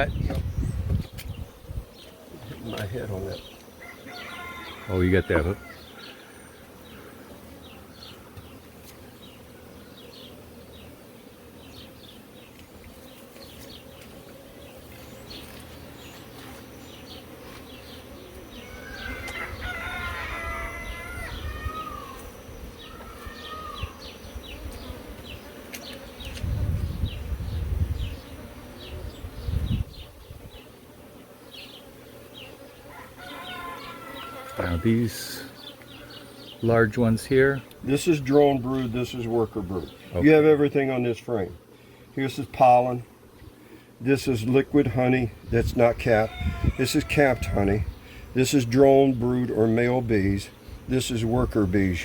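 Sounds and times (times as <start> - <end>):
honeybees buzzing: 0.0 - 52.0
bird calling: 16.9 - 26.4
deep rumbles on microphone: 26.4 - 28.2.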